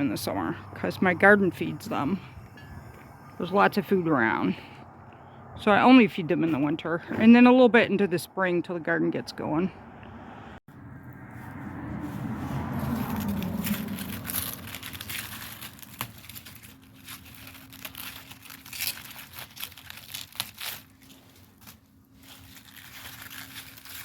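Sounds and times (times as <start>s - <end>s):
crinkling and rustling handling: 11.2s - 24.0s
small crackles and clicks: 13.0s - 24.0s.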